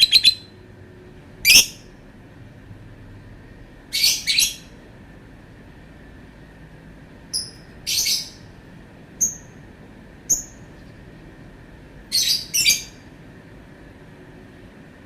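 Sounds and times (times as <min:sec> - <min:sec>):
bird screeching: 0:00.0 - 0:00.5, 0:07.9 - 0:08.4
bird chirping: 0:00.0 - 0:00.6, 0:01.4 - 0:01.9, 0:03.9 - 0:04.8, 0:07.3 - 0:08.5, 0:10.3 - 0:10.7, 0:12.1 - 0:13.1.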